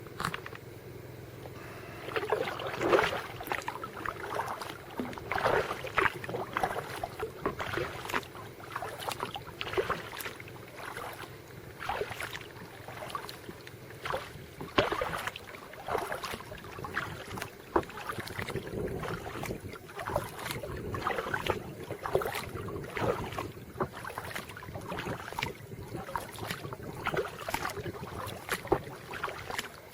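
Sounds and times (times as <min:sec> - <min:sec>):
paddle strokes splashing water: 0:01.2 - 0:29.9.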